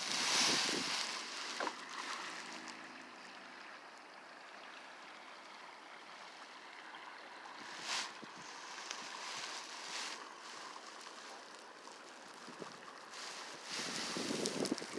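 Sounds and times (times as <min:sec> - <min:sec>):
paddle splash: 0:00.0 - 0:03.0, 0:07.6 - 0:14.9
water washing around kayak: 0:00.0 - 0:03.1, 0:07.6 - 0:14.9.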